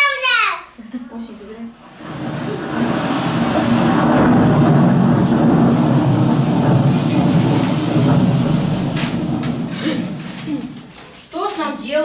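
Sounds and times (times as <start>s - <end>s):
heavy rumble of thunder: 1.8s - 11.0s
rain: 1.8s - 11.0s.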